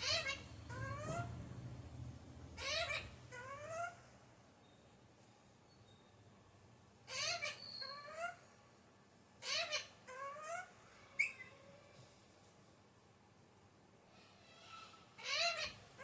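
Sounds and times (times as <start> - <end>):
parakeet squawking: 0.0 - 1.4, 2.5 - 4.0, 7.1 - 8.4, 9.4 - 11.5, 14.7 - 16.0.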